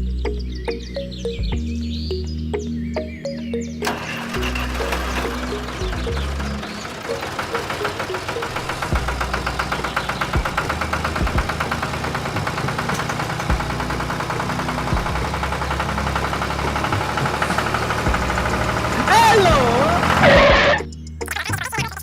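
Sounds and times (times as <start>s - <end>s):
small engine knocking: 3.8s - 20.7s.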